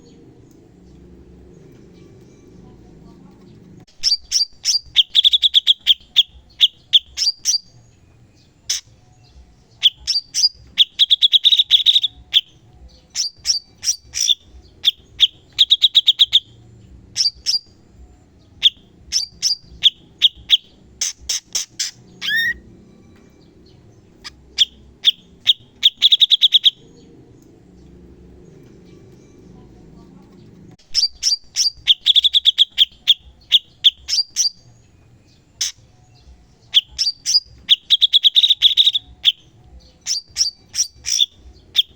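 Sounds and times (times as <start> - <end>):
bird rapid sharp chirps: 3.9 - 7.8, 9.7 - 17.8, 18.4 - 22.6, 23.6 - 27.2, 30.8 - 41.9.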